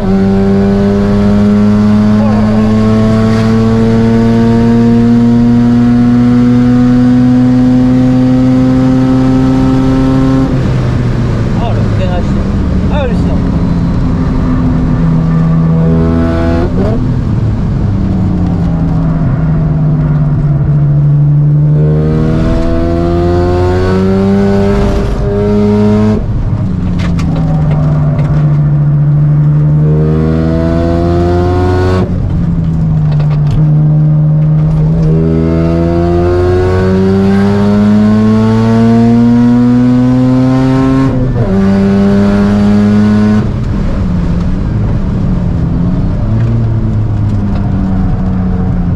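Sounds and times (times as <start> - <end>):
rotary engine revving: 0.0 - 10.5, 21.6 - 26.3.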